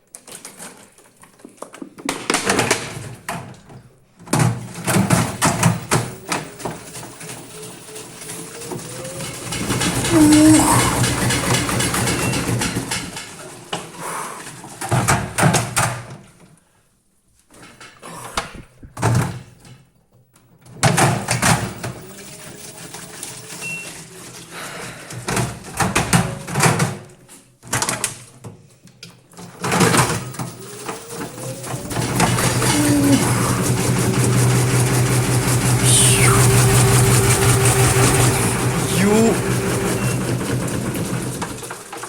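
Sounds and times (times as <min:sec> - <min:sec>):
washing machine hum: 0:08.0 - 0:13.6, 0:29.7 - 0:42.0.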